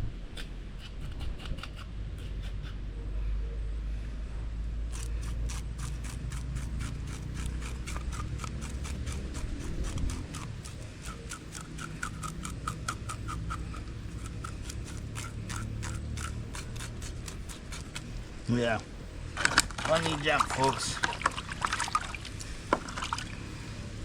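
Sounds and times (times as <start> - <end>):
knife scraping fish scales: 0.4 - 2.8, 4.9 - 18.4.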